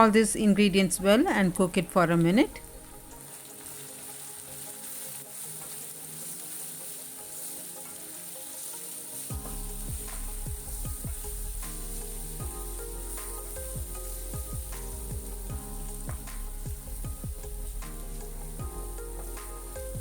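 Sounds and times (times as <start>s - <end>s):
background music: 0.0s - 20.0s
masala sizzling in oil: 0.0s - 20.0s
low thumping beat: 9.3s - 20.0s.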